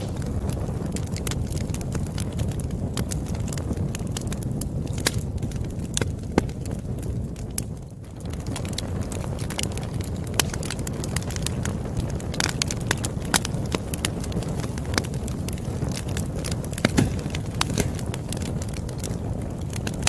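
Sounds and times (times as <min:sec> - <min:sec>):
campfire crackling: 0:00.0 - 0:20.0
fire popping and snapping: 0:00.0 - 0:20.0.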